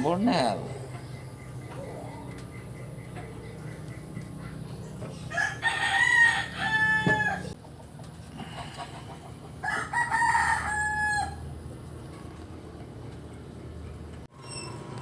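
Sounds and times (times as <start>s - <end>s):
rooster crowing: 5.3s - 7.6s, 9.6s - 11.5s.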